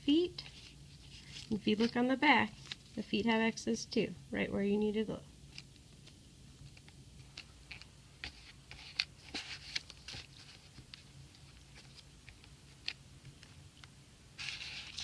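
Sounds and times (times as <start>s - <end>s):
paper cut-outs rustling: 0.4s - 3.2s, 14.4s - 15.0s.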